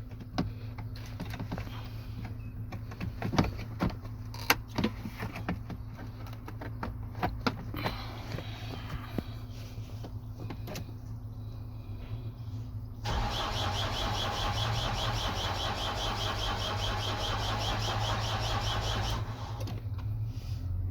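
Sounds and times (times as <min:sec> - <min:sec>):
starter motor cranking engine: 0:13.0 - 0:19.8.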